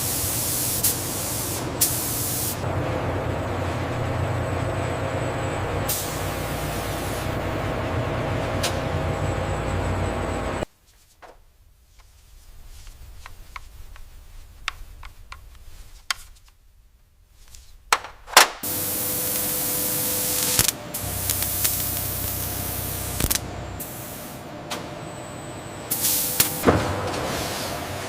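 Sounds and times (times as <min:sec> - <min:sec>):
loud steady hiss: 0:00.0 - 0:02.6, 0:05.8 - 0:07.5, 0:18.6 - 0:24.5, 0:25.9 - 0:26.8
faint hum: 0:00.1 - 0:10.7, 0:18.6 - 0:28.0.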